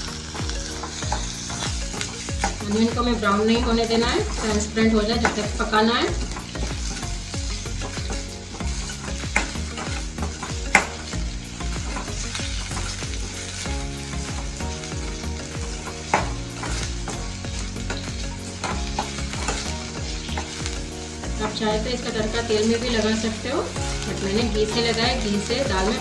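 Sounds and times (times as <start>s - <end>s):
metal spatula scraping: 0.0s - 26.0s
onions sizzling in ghee: 0.0s - 26.0s.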